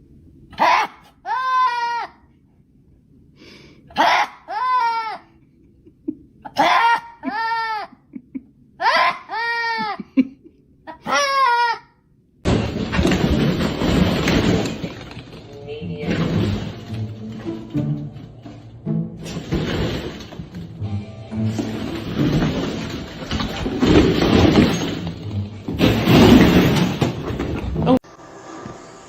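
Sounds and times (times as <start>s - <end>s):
voice crying out: 0.5s - 2.2s, 3.9s - 5.3s, 6.5s - 8.0s, 8.8s - 10.0s, 10.9s - 12.0s.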